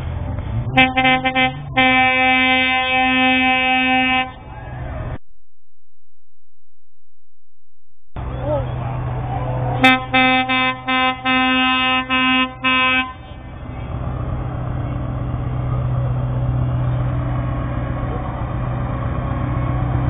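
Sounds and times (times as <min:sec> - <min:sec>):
lorry air horn blasts: 0:00.7 - 0:04.4, 0:09.8 - 0:13.3.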